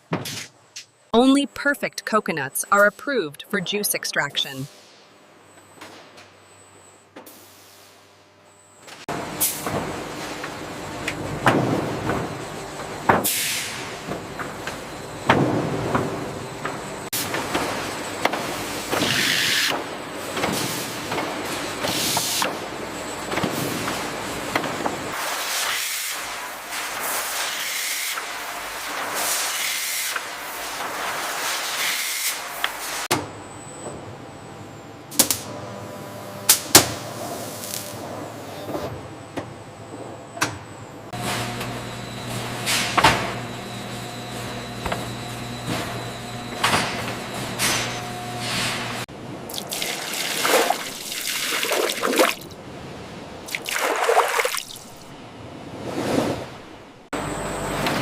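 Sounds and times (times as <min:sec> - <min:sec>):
liquid splashing and pouring: 0:49.5 - 0:52.6, 0:53.5 - 0:55.1.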